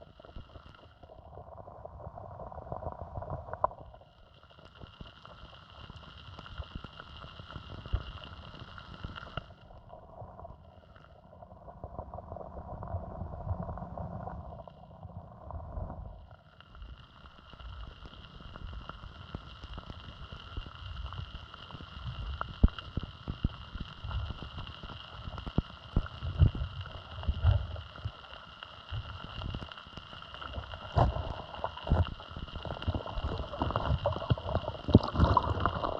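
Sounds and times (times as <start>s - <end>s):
stream gurgling: 30.4s - 35.9s.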